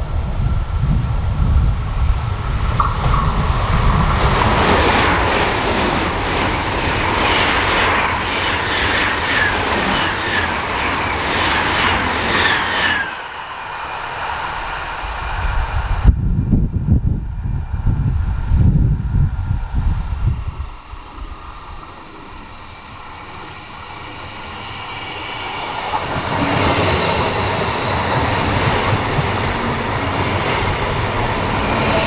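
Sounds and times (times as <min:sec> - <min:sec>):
train wheels rumbling on rail: 0:00.0 - 0:32.0
wind buffeting microphone: 0:00.0 - 0:32.0.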